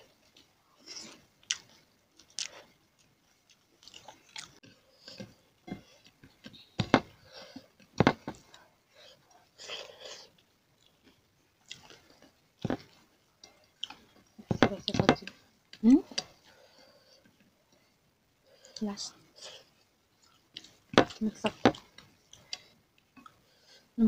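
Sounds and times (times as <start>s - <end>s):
chewing food: 0.0s - 6.7s, 7.3s - 14.4s, 19.4s - 23.9s.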